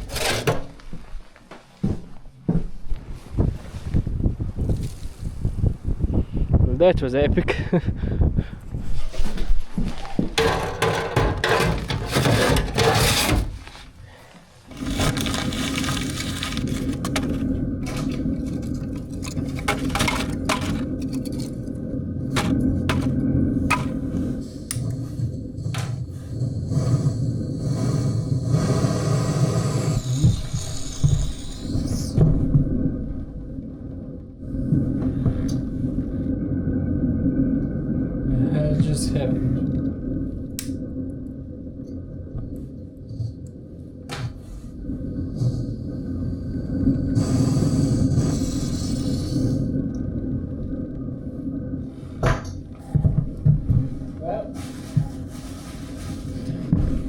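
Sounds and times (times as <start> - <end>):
scraping handling noise: 0.0 - 1.0, 10.0 - 21.7, 22.3 - 24.1
low rumbling noise: 0.0 - 57.0.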